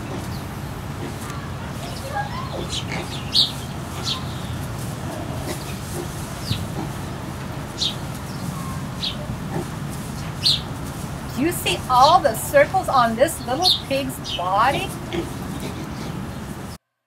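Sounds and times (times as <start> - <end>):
small birds chirping: 0.0 - 16.8
steady low hum: 0.0 - 16.8.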